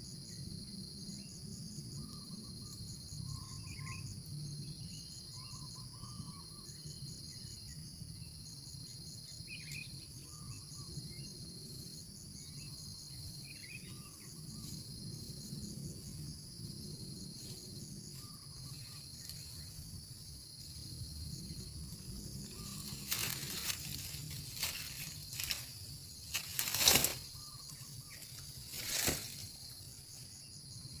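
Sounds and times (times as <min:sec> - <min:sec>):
insect chorus trilling: 0:00.0 - 0:31.0
rustling crackling noises: 0:22.3 - 0:27.4, 0:28.2 - 0:29.7.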